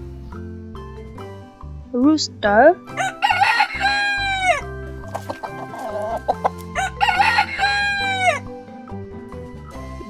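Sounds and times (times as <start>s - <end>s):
rooster crowing: 3.0s - 4.6s, 5.2s - 8.4s.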